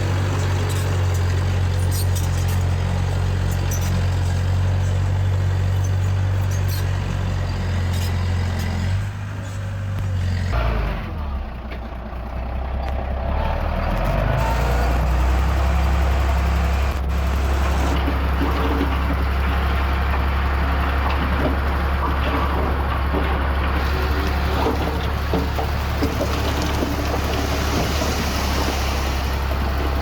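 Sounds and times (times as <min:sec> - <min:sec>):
heavy machinery diesel engine: 0:00.0 - 0:30.0
clanks and rattles: 0:17.0 - 0:30.0.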